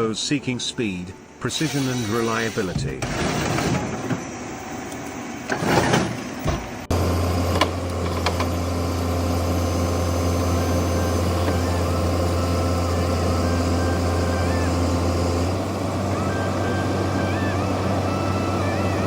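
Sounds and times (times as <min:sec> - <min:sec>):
heavy machinery noise: 0:00.0 - 0:19.0
heavy vehicle engine running: 0:06.3 - 0:19.0.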